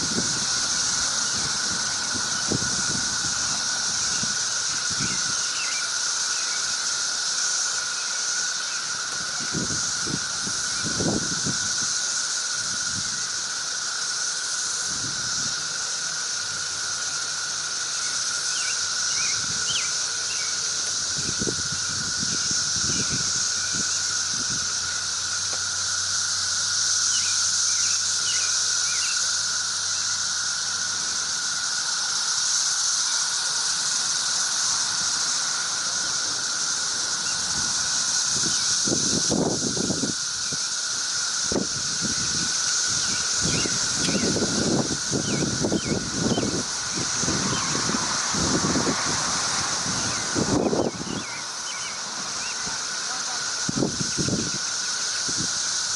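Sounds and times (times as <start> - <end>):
cicadas droning: 0.0 - 55.9.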